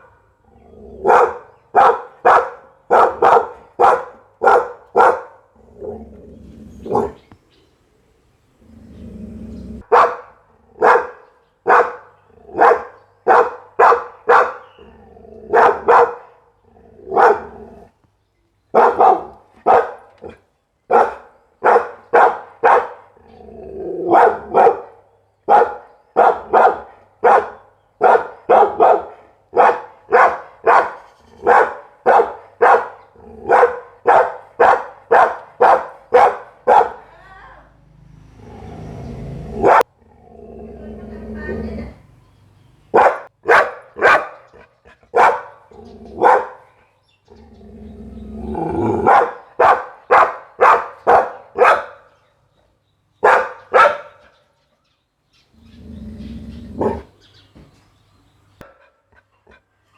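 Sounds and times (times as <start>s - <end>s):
dog barking: 1.0s - 6.0s, 6.9s - 7.2s, 9.8s - 14.8s, 15.5s - 16.4s, 17.1s - 17.6s, 18.7s - 23.1s, 24.0s - 37.1s, 38.4s - 40.0s, 42.9s - 46.7s, 48.8s - 52.2s, 53.2s - 54.4s, 56.8s - 57.1s, 58.6s - 59.0s.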